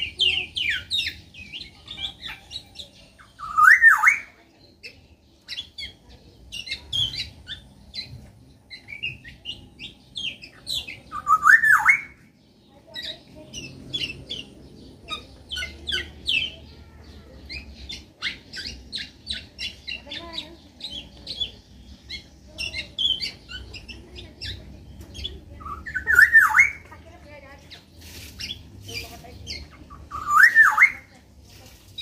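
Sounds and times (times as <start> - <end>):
birds chirping: 0.0 - 32.0
bird fluty whistle: 3.4 - 4.3, 11.2 - 12.2, 30.1 - 31.1.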